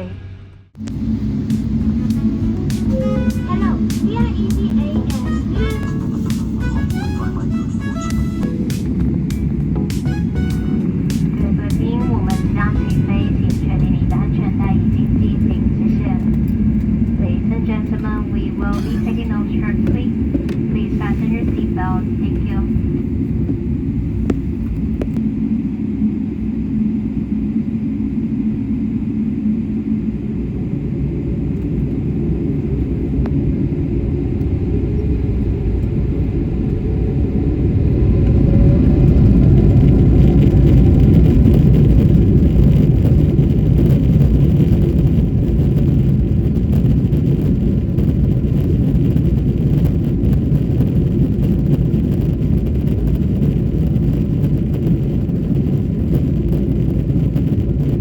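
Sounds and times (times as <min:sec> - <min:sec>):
jet engines during takeoff: 0:00.0 - 0:58.0.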